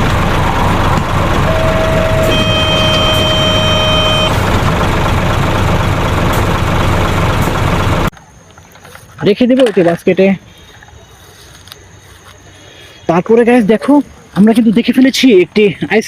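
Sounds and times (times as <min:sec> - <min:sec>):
steady high tone: 0:00.0 - 0:04.6
truck engine running: 0:00.0 - 0:08.1.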